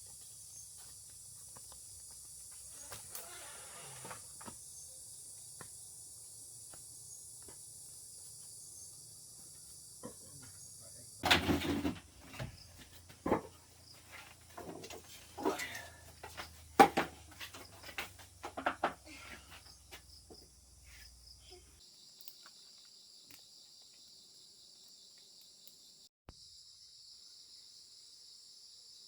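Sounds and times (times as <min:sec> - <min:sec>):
forest insects chirring: 0:00.0 - 0:11.2, 0:12.2 - 0:29.0
knocks and clatters of handling: 0:11.2 - 0:19.6.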